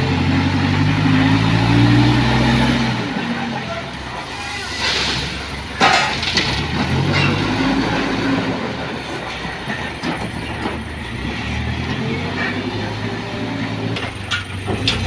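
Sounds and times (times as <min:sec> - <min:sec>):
diesel engine working under load: 0:00.0 - 0:15.0
bucket clanking on stone: 0:05.8 - 0:07.5.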